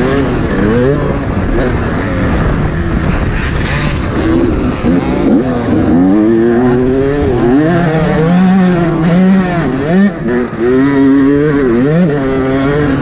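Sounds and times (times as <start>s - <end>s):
motocross engine revving: 0.0s - 13.0s.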